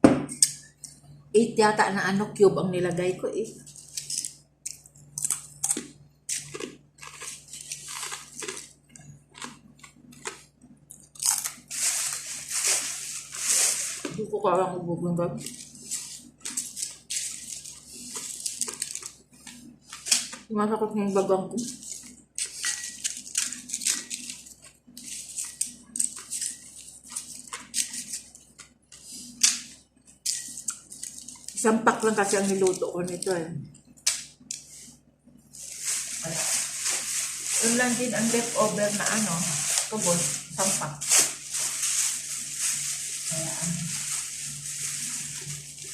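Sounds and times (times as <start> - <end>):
chewing crunchy food: 3.6 - 12.5, 15.4 - 20.5, 21.7 - 35.8.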